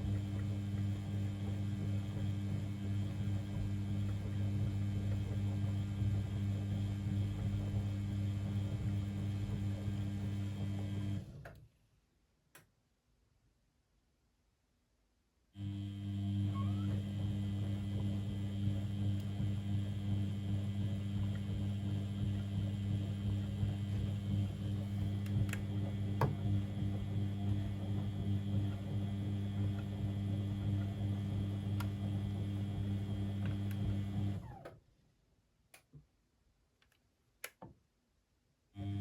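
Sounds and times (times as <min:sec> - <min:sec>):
washing machine humming: 0:00.0 - 0:11.4, 0:15.6 - 0:34.7, 0:38.8 - 0:39.0.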